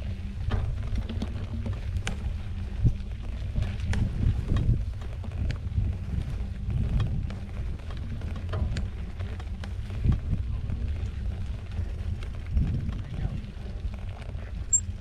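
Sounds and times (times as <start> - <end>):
wind on microphone: 0.0 - 9.2, 9.8 - 15.0
bike rolling over dirt trail: 3.3 - 14.6
bike clicks and rattles: 3.4 - 15.0.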